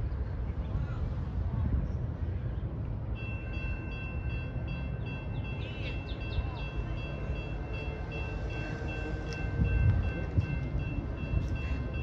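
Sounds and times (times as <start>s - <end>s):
distant train rumble: 0.0s - 12.0s
high ringing tones: 3.2s - 12.0s.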